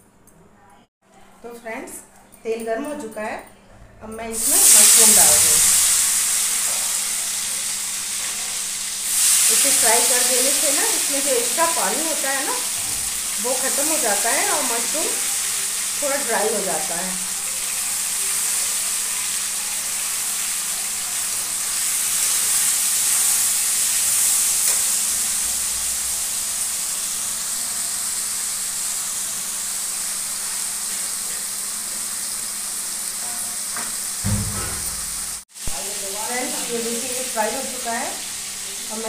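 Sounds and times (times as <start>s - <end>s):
mushrooms sizzling in oil: 4.3s - 39.0s
brief low knock: 34.2s - 35.4s.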